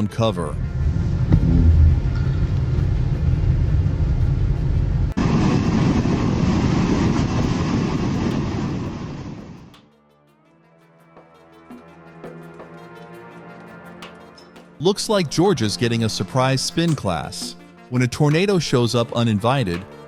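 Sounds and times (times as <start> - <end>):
tornado wind rumbling: 0.5 - 9.8.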